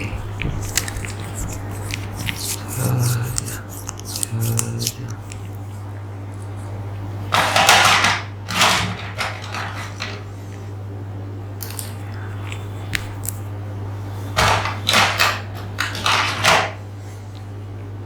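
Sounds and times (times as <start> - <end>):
scratchy scrapes: 0.0 - 5.8
low electrical hum: 0.0 - 18.0.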